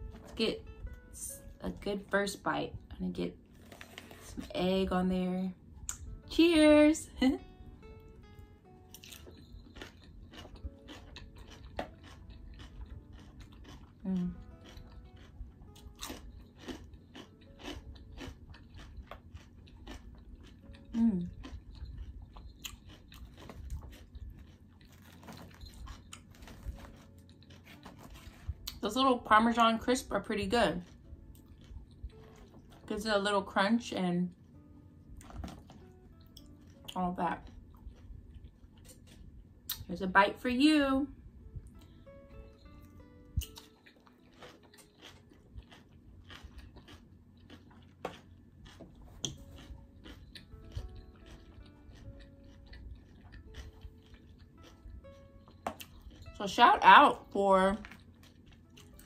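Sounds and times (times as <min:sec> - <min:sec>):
chewing crunchy salad: 0:08.9 - 0:28.8, 0:29.8 - 0:33.3, 0:35.2 - 0:39.9, 0:43.4 - 0:57.0, 0:57.7 - 0:59.0.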